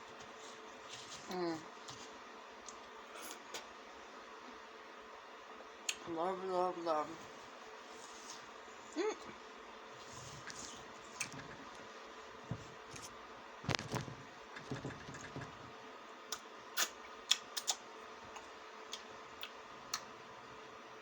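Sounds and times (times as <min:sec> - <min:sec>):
wet mouth clicks and smacks: 0:16.3 - 0:17.8.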